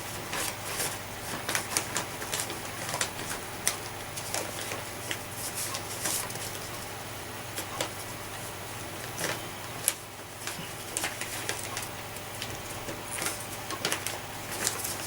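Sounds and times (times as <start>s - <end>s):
paper bag clicks and rustles: 0.0s - 15.0s.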